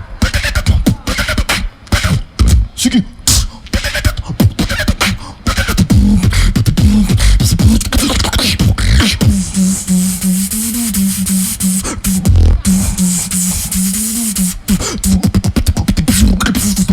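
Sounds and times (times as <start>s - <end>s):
beatboxing: 0.0s - 16.9s
pulsing low vocal buzz: 5.5s - 16.9s.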